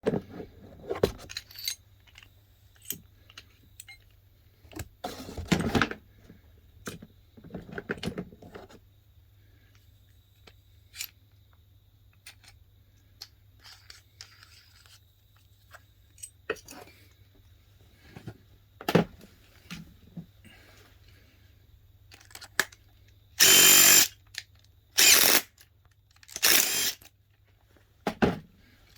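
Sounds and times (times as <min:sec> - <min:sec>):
metal tools clicking and clattering: 0:01.2 - 0:04.1.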